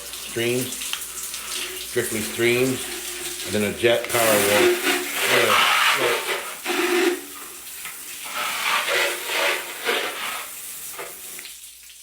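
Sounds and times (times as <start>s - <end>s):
shower head spraying water: 0.0s - 11.6s.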